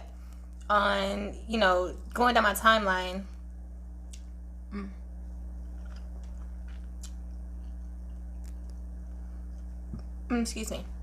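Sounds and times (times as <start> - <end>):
low electrical hum: 0.0 - 11.0
person chewing crunchy food: 5.4 - 10.2.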